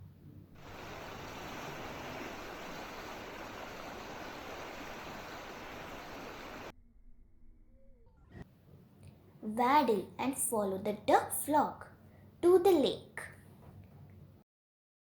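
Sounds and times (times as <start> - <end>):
rushing water: 0.6 - 6.7.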